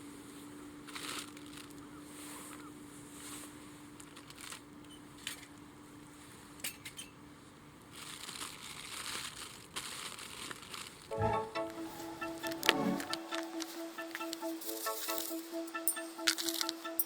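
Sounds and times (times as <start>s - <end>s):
faint rustling and crunching: 0.2s - 6.9s, 7.8s - 11.1s.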